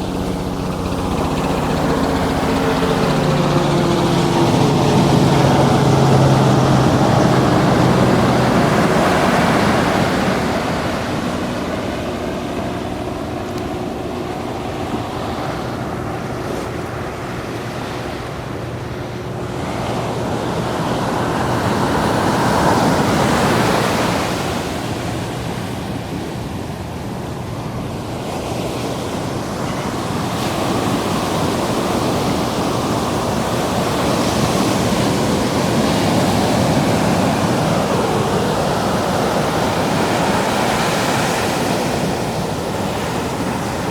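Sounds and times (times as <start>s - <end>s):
ocean surf washing in: 0.0s - 26.4s, 27.0s - 43.9s.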